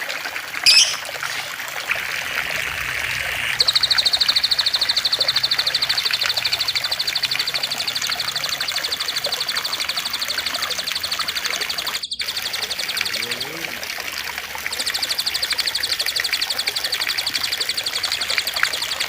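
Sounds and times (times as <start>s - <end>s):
trickling water: 0.0s - 19.0s
bird trilling: 0.6s - 1.6s.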